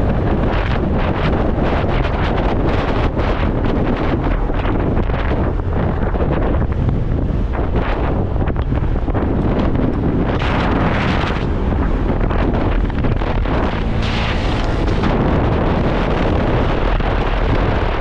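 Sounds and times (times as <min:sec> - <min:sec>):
road noise: 0:00.0 - 0:18.0
wind buffeting microphone: 0:00.0 - 0:18.0
motorcycle engine: 0:10.3 - 0:17.5.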